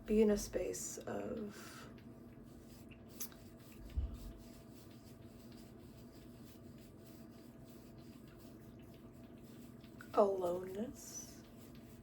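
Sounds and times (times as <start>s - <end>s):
faint steady hum: 0.0s - 12.0s
soft low thump: 3.9s - 4.4s.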